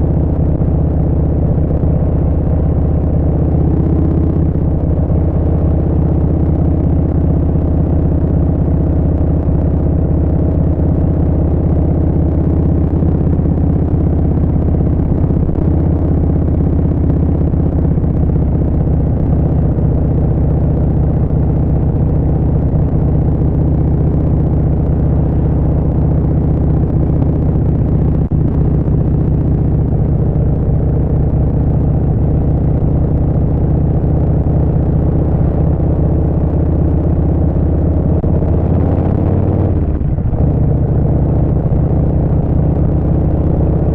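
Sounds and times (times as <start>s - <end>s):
motorcycle engine cruising: 0.0s - 43.9s.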